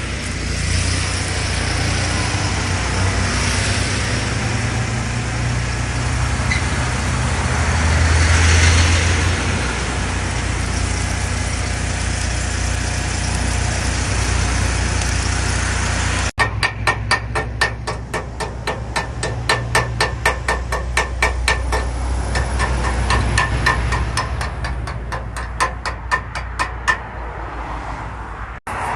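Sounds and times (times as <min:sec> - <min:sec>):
engine running: 0:00.0 - 0:28.9
hammer beating on metal: 0:16.4 - 0:27.2.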